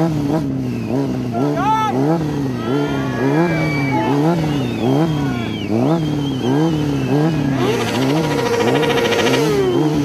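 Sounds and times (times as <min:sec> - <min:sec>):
motorcycle engine revving: 0:00.0 - 0:10.0
wavering high squeal: 0:07.3 - 0:10.0.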